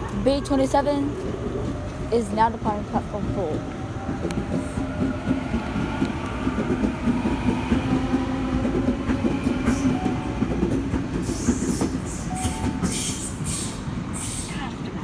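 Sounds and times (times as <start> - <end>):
train wheels clicking over rail joints: 3.5 - 14.5
short bursts of hiss: 12.9 - 14.6.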